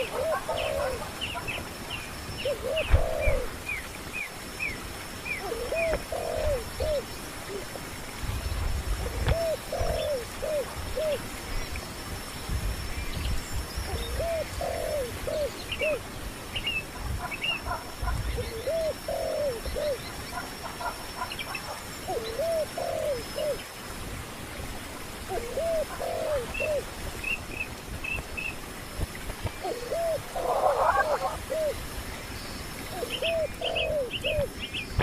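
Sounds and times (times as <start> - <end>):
dove cooing: 0.0 - 1.7, 2.4 - 3.6, 5.4 - 7.8, 9.0 - 11.2, 13.9 - 16.0, 17.2 - 23.6, 25.3 - 26.9, 29.6 - 31.8, 32.9 - 34.6.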